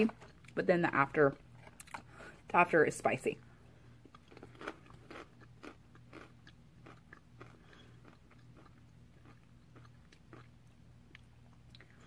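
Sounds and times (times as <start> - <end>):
low steady hum: 0.0 - 12.0
crunching chip being chewed: 4.0 - 12.0.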